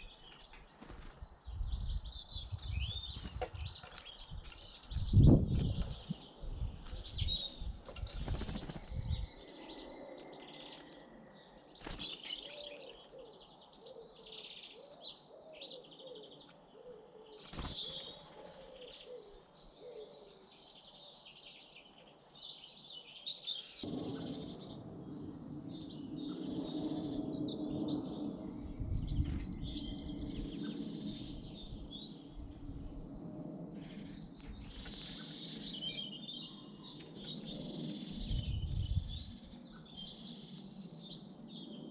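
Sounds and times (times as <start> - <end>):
wings fluttering: 0.0 - 9.7, 10.7 - 13.1, 17.4 - 18.6, 33.7 - 35.8
birds chirping and singing: 0.0 - 41.9.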